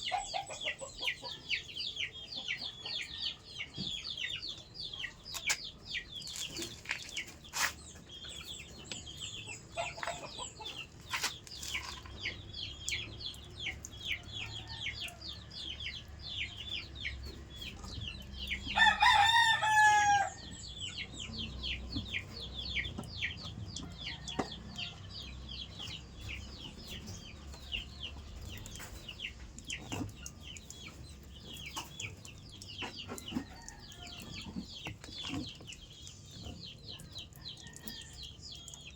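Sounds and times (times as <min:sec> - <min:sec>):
chickens peeping and clucking: 0:00.0 - 0:38.9
rooster crowing: 0:18.8 - 0:20.4.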